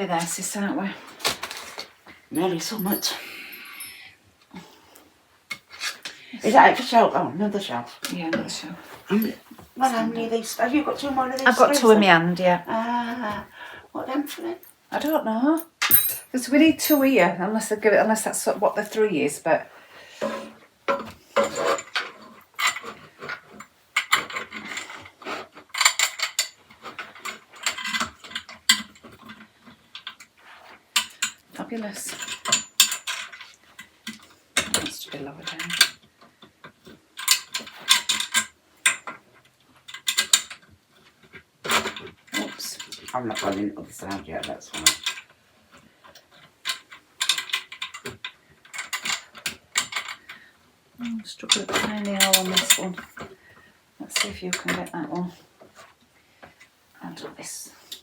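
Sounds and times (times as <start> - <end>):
shelf parts clicking and rattling: 14.6 - 17.4, 20.2 - 50.4, 51.0 - 55.0.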